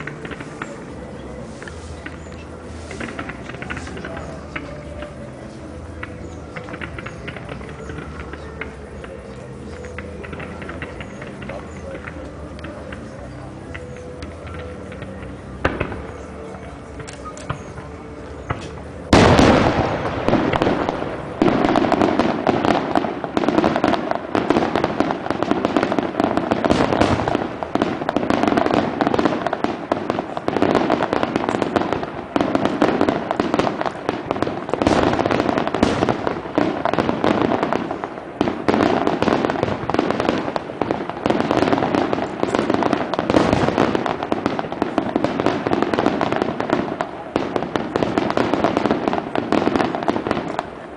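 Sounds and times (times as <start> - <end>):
firework shell explosions and crackling: 0.0 - 50.9
firework bang: 18.5 - 50.6.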